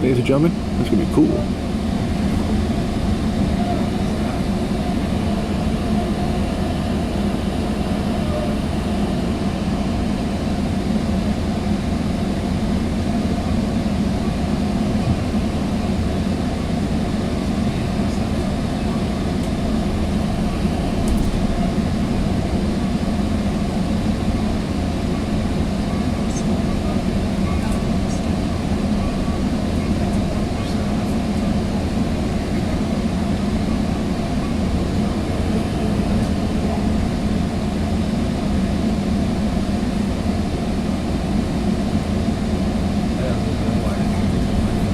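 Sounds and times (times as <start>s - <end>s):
train ride rumble: 0.0s - 44.9s.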